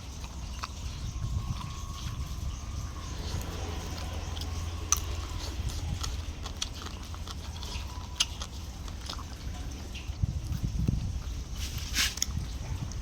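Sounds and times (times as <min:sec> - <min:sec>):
chewing: 0:00.0 - 0:13.0
steady low rumble: 0:00.0 - 0:13.0.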